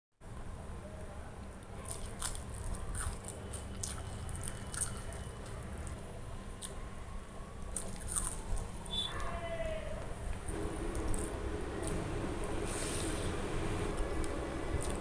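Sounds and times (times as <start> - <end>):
steady low hum: 0.2 - 15.0
wet chewing: 1.8 - 6.0, 7.6 - 8.8, 14.0 - 15.0.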